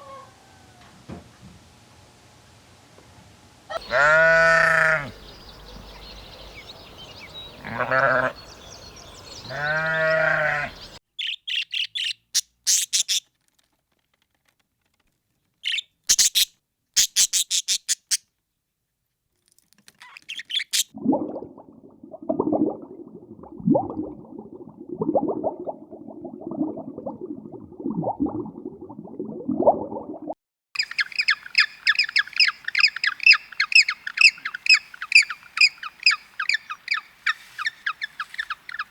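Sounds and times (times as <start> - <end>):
sheep or goat bleat: 3.8 - 5.1, 7.6 - 8.3, 9.5 - 10.8
bird chirps and squawks: 9.5 - 13.2, 15.6 - 18.2, 20.0 - 20.9, 30.8 - 38.9.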